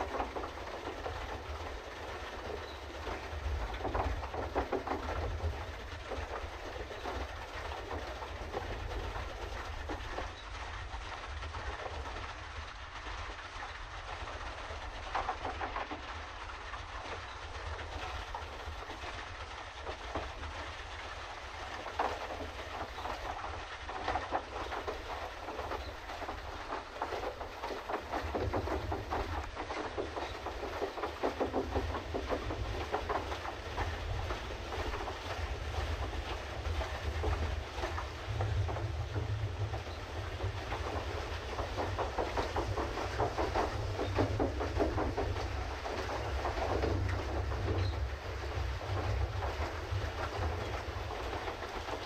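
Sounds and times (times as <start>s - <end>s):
paddle wheel churning water: 0.0s - 52.0s
low rumble: 31.4s - 51.9s.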